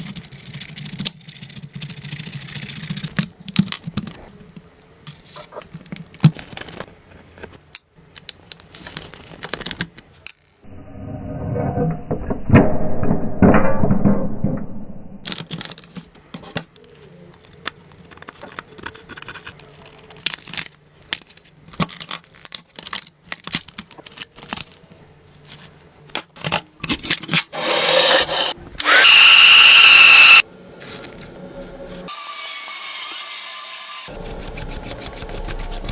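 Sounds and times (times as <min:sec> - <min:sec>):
power tool whining: 0:27.6 - 0:30.4, 0:32.1 - 0:34.1.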